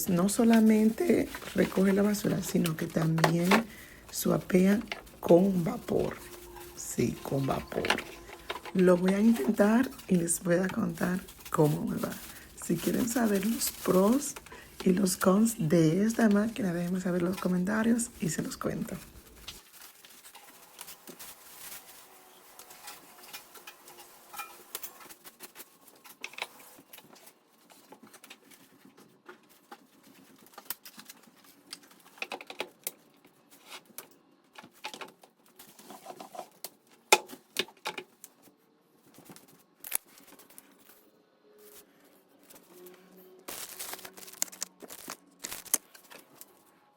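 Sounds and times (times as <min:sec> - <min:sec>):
plastic parts clattering: 0:00.0 - 0:28.9, 0:43.5 - 0:46.6
packaging crinkling: 0:00.0 - 0:32.8, 0:43.5 - 0:46.6.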